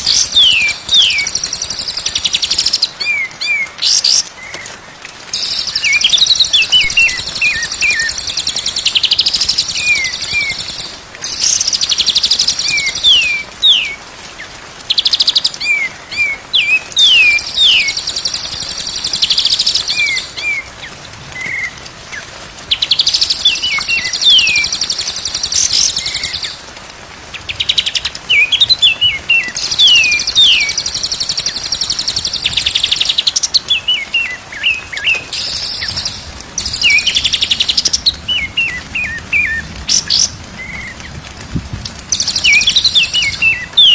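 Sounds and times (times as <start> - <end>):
songbird trilling and whistling: 0.0 - 4.2, 5.4 - 14.0, 14.9 - 20.6, 27.6 - 40.9, 42.1 - 43.9.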